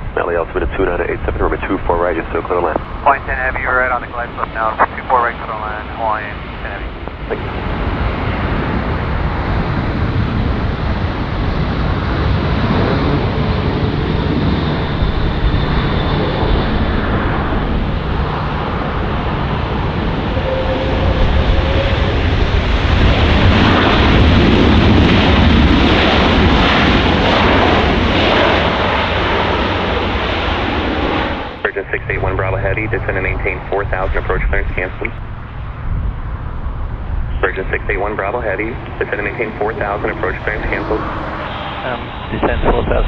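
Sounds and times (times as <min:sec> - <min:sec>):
faint engine whine: 0:00.0 - 0:43.0
jet airliner engines roaring: 0:00.0 - 0:43.0.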